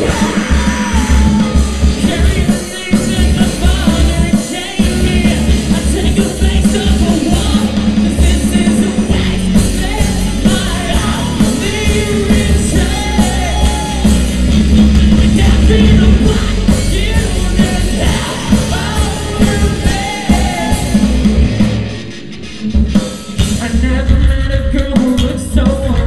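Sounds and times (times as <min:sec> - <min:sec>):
singer yelling: 0:00.0 - 0:14.4, 0:15.2 - 0:21.3
live rock band playing: 0:00.0 - 0:26.0.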